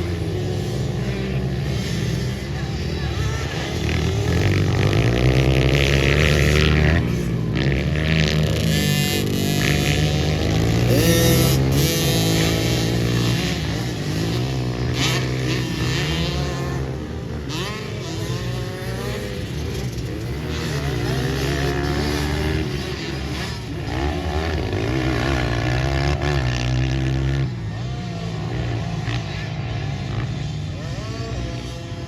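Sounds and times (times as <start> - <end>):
pit bike engines revving: 0.0 - 32.0.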